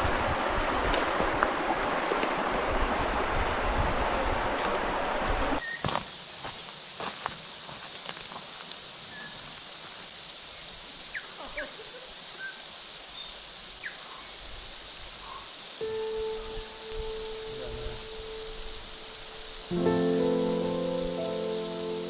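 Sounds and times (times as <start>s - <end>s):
cicadas chorus: 0.0s - 22.0s
held musical note: 15.8s - 22.0s.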